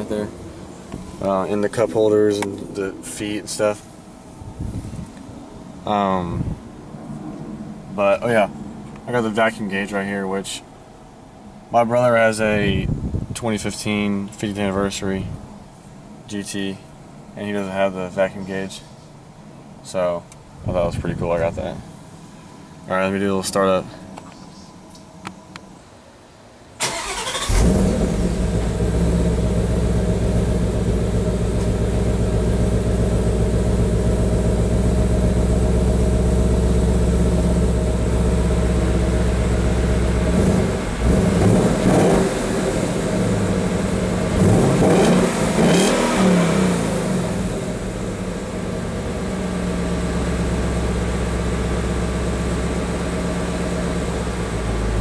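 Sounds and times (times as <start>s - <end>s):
car engine revving: 26.8s - 55.0s
car engine starting and idling: 26.8s - 55.0s.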